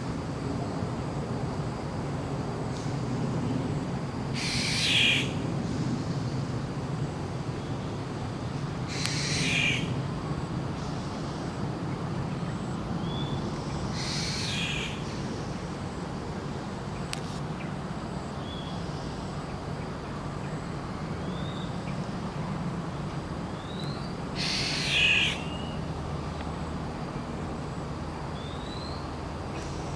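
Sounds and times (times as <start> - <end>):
low background noise: 0.0 - 29.9
harsh bird calls: 13.0 - 15.3, 23.6 - 25.8.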